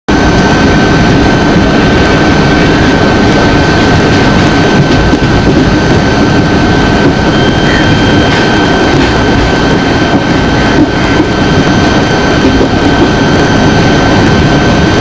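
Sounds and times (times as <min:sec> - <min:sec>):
moving train rumble: 0:00.1 - 0:15.0
thin high whine: 0:07.1 - 0:11.3.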